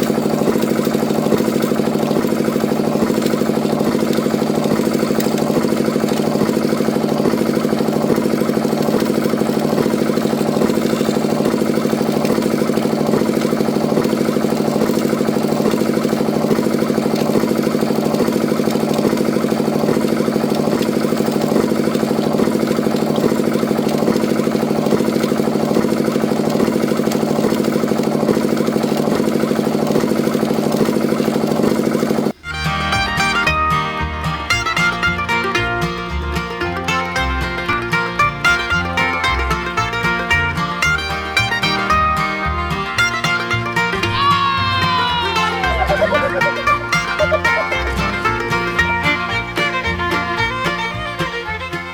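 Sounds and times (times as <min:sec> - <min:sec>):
small engine running: 0:00.0 - 0:51.9
music: 0:32.4 - 0:51.9.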